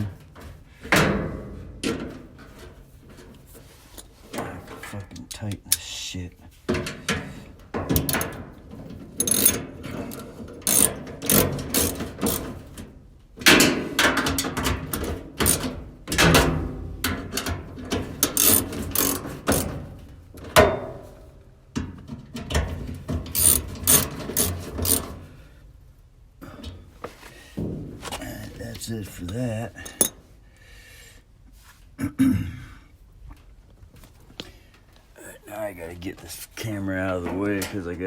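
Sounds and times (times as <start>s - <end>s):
tool clicking on sheet metal: 9.2s - 12.6s, 13.5s - 19.8s, 23.3s - 25.2s.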